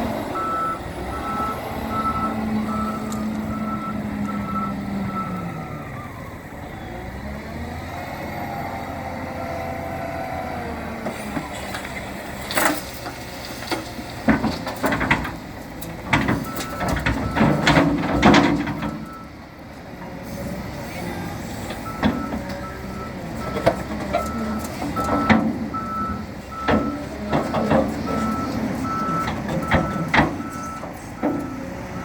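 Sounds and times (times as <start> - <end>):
diesel engine running: 0.0 - 32.0
faint reversing beeps: 0.3 - 6.9, 24.2 - 32.0.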